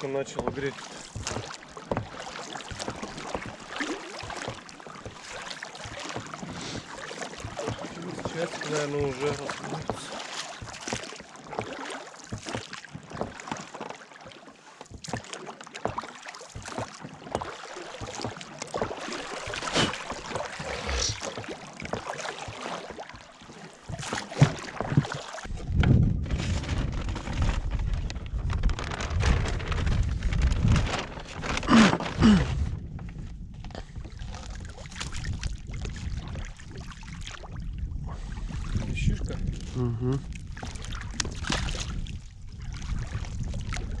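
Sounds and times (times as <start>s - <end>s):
water splashing: 0.0s - 25.7s, 33.8s - 44.0s
knocks from small boat: 23.8s - 26.2s
wind buffeting microphone: 24.9s - 44.0s.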